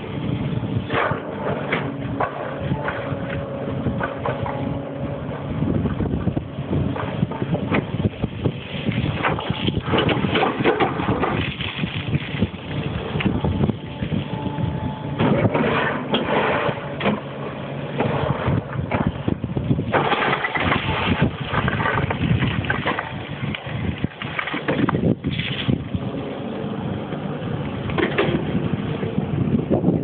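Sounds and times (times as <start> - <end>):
excavator diesel engine running: 0.0 - 30.0
rough clattering noise: 8.8 - 14.2, 27.8 - 28.5.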